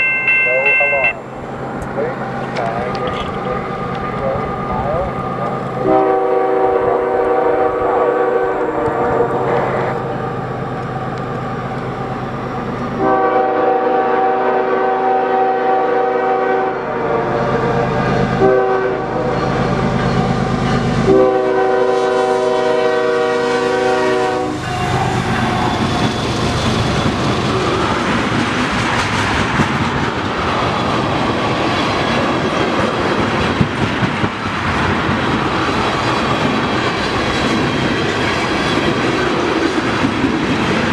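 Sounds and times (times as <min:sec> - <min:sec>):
wheels clattering over rail joints: 0:00.0 - 0:05.9
locomotive air horn blasts: 0:05.8 - 0:10.0, 0:13.0 - 0:19.7, 0:21.0 - 0:25.9.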